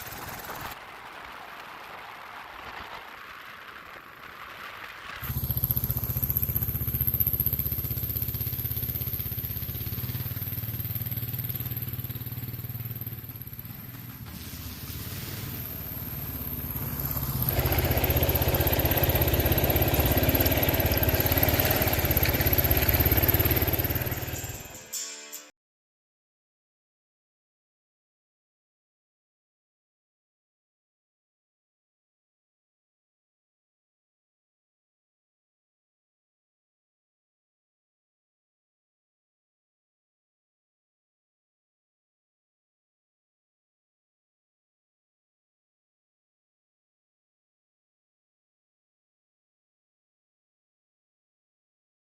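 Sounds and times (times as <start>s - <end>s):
motorcycle engine running: 0.0s - 0.8s, 5.2s - 25.0s.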